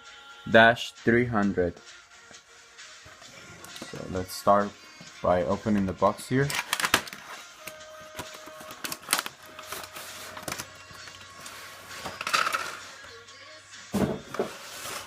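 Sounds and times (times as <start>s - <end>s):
packaging clicks and knocks: 6.5s - 10.7s
packaging rustle: 6.5s - 12.9s.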